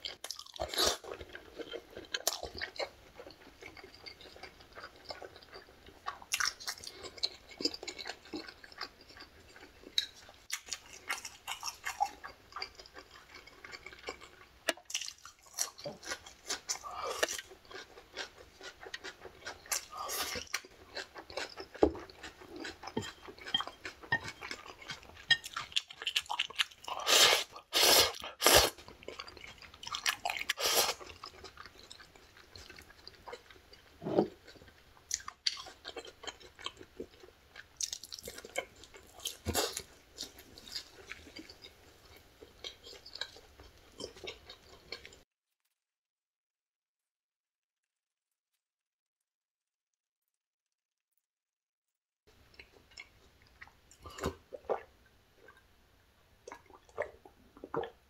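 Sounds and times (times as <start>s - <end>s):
person chewing with wet clicks: 0.0s - 45.2s, 52.4s - 55.7s, 56.4s - 58.0s.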